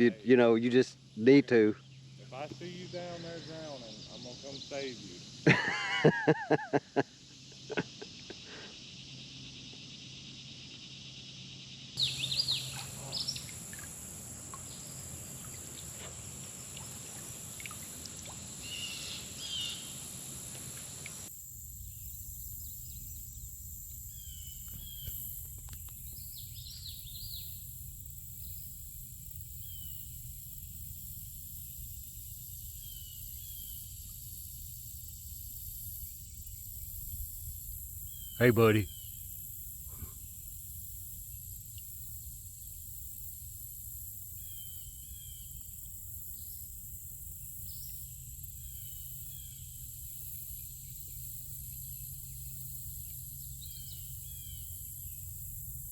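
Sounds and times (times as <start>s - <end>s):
insects droning: 0.0s - 55.9s
bird chirps: 7.4s - 13.9s, 24.0s - 27.6s.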